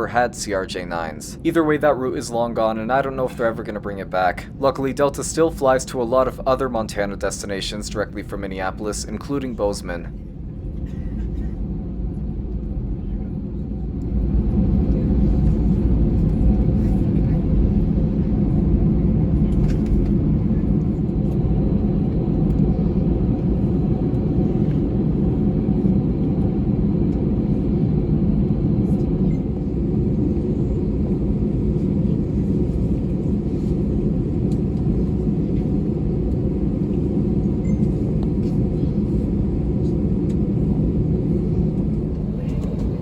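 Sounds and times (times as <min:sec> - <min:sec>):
airliner engine rumble in cabin: 0:00.0 - 0:43.0.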